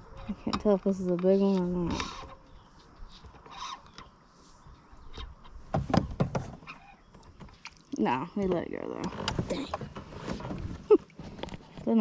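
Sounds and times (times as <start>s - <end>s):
sharp knocks: 5.7s - 6.6s.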